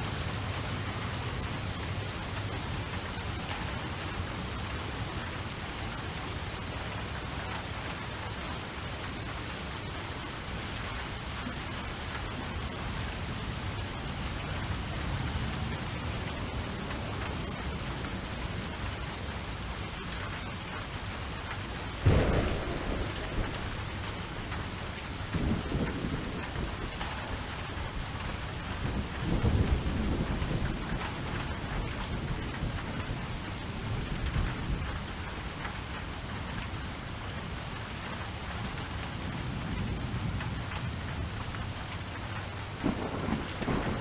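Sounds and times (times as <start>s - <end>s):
heavy rain: 0.0s - 44.0s
sharp thunderclap: 22.0s - 31.1s, 42.8s - 44.0s
low rolling thunder: 22.0s - 36.0s, 42.8s - 44.0s.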